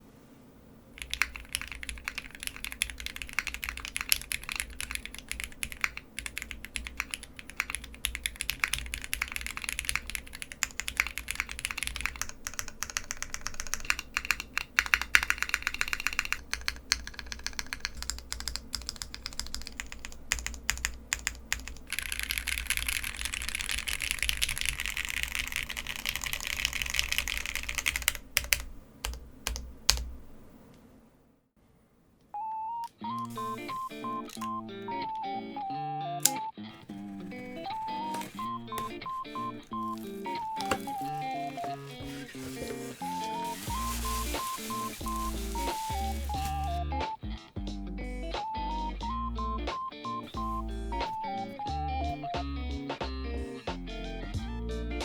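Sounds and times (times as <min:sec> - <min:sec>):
mechanical keyboard typing: 0:01.0 - 0:30.1, 0:32.8 - 0:35.3, 0:36.2 - 0:46.8.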